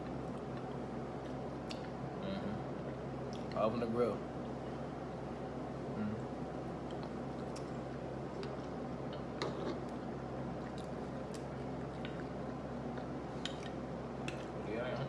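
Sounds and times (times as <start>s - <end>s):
low background hum: 0.0s - 15.0s
chewing with small clicks: 0.2s - 2.0s, 6.8s - 10.0s, 10.6s - 14.6s.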